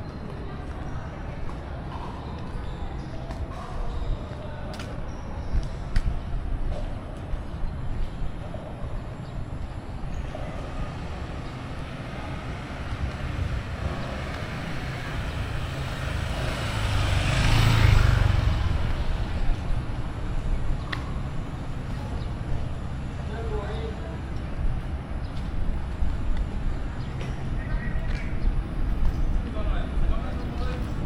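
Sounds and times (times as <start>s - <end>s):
vehicle passing by: 10.3s - 24.3s.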